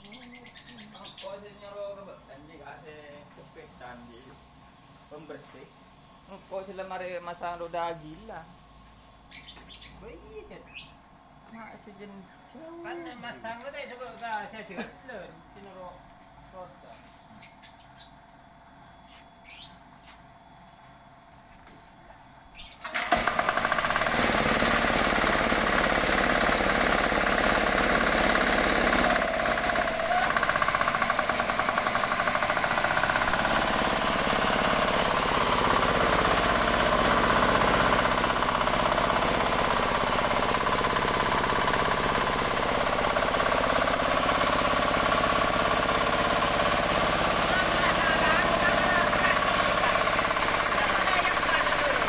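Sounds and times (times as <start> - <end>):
diesel engine knocking: 23.1 - 52.0.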